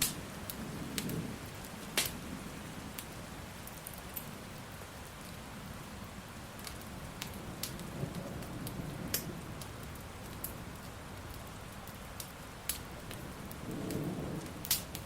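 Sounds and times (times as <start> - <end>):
crackling fire pops: 0.0 - 2.2, 6.6 - 15.0
steady rain: 0.0 - 15.0
distant thunder rumble: 13.1 - 15.0.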